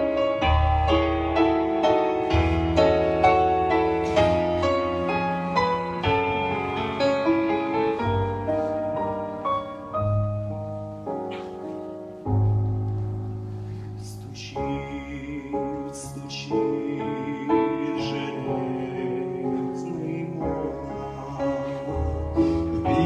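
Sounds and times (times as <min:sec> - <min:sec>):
slow piano melody: 0:00.0 - 0:23.0
low bass notes: 0:12.2 - 0:16.3.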